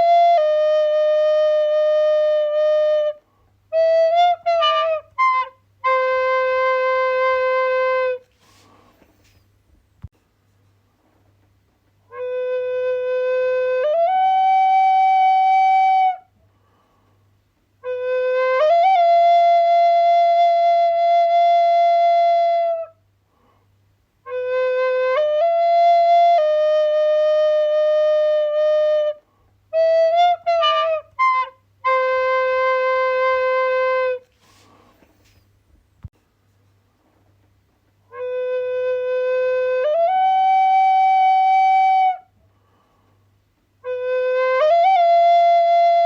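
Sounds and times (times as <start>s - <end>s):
solo flute melody: 0.0s - 8.6s, 12.0s - 16.3s, 17.8s - 23.0s, 24.2s - 34.7s, 38.1s - 42.4s, 43.8s - 46.0s.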